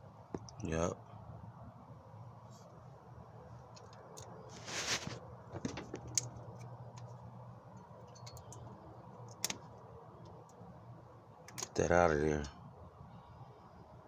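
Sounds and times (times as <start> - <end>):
brief scraping rush: 4.5 - 5.2
tools and metal parts clinking: 5.6 - 9.6.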